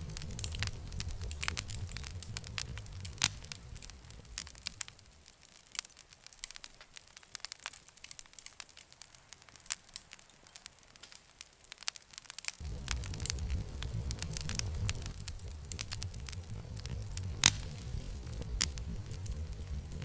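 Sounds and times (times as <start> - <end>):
low rumble: 0.0 - 5.1, 12.6 - 20.0
campfire crackling: 0.0 - 20.0.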